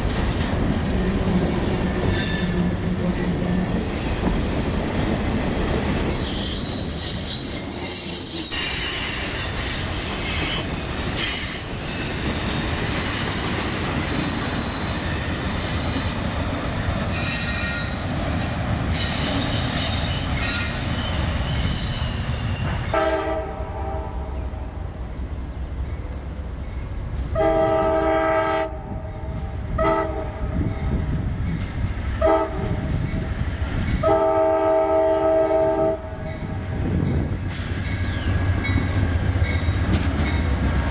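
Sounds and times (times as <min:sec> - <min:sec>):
rumble of train cars: 0:00.0 - 0:40.9
train wheels squealing: 0:01.8 - 0:03.4, 0:05.9 - 0:23.0, 0:37.1 - 0:40.4
locomotive horn blasts: 0:22.9 - 0:24.6, 0:27.3 - 0:30.7, 0:32.2 - 0:32.8, 0:34.0 - 0:36.2.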